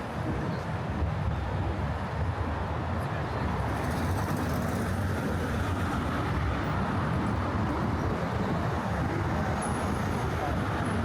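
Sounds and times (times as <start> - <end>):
traffic on a bridge: 0.0 - 11.0.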